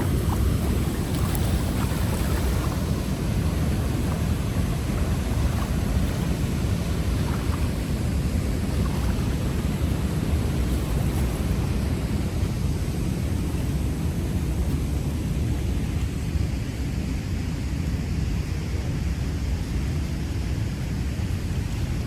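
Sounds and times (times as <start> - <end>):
flooded river rushing: 0.0 - 16.8.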